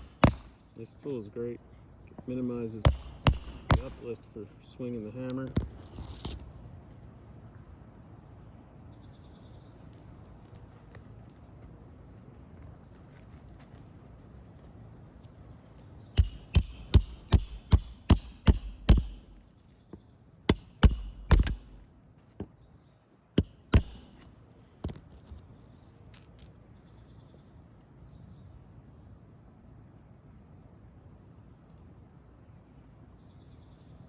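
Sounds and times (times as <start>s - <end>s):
hammer striking roofing nails: 0.0s - 0.6s, 2.8s - 4.1s, 16.2s - 19.4s, 20.5s - 21.9s, 23.4s - 24.2s.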